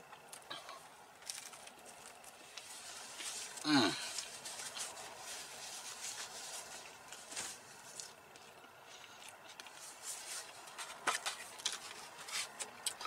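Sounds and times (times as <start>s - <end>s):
rustling over paper plate: 1.2s - 12.8s.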